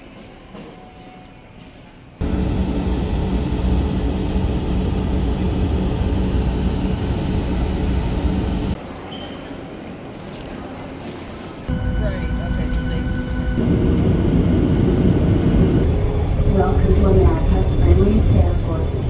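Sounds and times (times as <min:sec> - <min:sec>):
steady hum: 0:02.2 - 0:08.8, 0:11.7 - 0:19.0
vehicle engine rumble: 0:02.2 - 0:08.8, 0:11.7 - 0:19.0.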